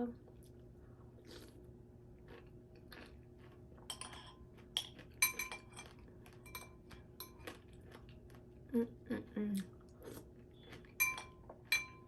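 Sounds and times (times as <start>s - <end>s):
spoon clinking against bowl: 3.9s - 7.4s, 11.0s - 12.0s.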